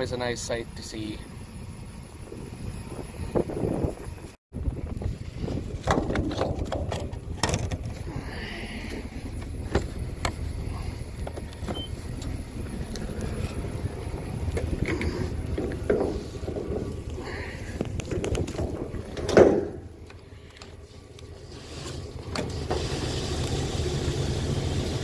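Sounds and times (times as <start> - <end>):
vehicle engine running: 0.0 - 25.0
sharp clicks and knocks: 5.8 - 8.0, 14.5 - 21.3.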